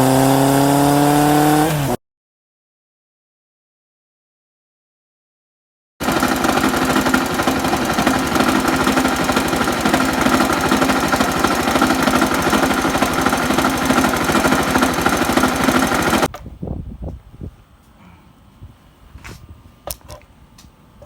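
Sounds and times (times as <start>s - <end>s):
motorcycle engine knocking clatter: 6.0s - 16.3s.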